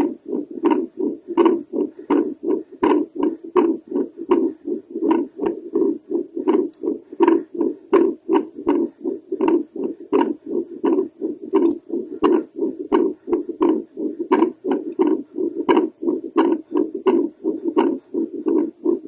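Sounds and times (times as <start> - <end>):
heartbeat whooshes with clicks: 0.0 - 19.0.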